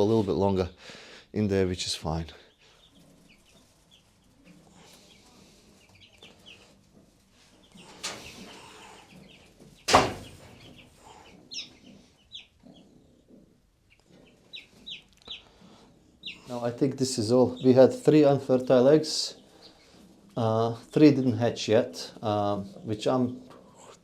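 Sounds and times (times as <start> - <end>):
chicks peeping: 0.0 - 21.5
sharp knock: 9.9 - 10.5.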